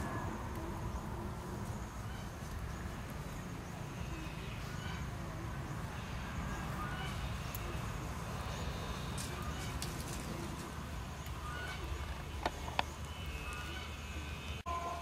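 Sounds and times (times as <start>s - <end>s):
birds calling: 0.0s - 14.7s.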